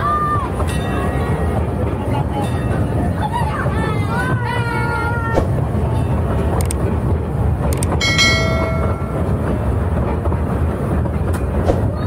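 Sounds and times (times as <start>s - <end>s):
ride train rumble: 0.0s - 12.0s
short ringing tone: 8.0s - 9.5s.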